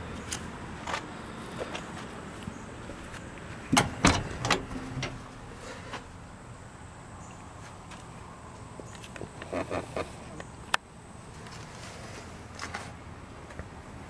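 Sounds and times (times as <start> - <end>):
truck door knocks: 3.7 - 5.2.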